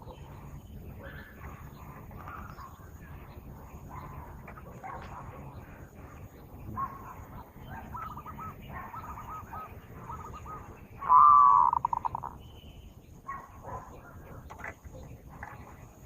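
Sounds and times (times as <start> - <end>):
dove cooing: 3.8 - 12.4.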